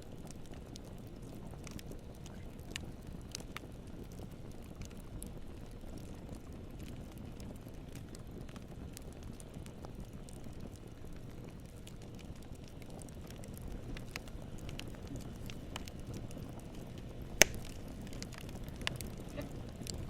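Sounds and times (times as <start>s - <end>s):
campfire flames rushing: 0.0s - 20.0s
small fire crackles: 0.0s - 20.0s
log popping loudly: 17.0s - 19.5s.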